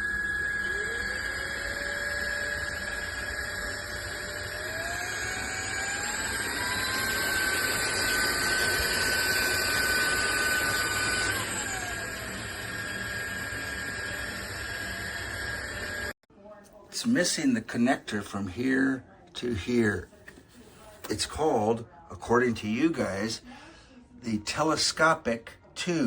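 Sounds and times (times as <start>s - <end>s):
low tone rising in pitch: 0.0s - 10.7s
vacuum motor whining: 0.0s - 16.2s.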